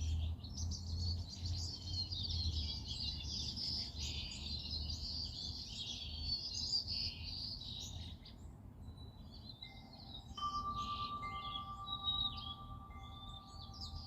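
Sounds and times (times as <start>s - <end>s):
songbirds chirping: 0.0s - 14.0s
steady ringing tone: 9.8s - 14.0s.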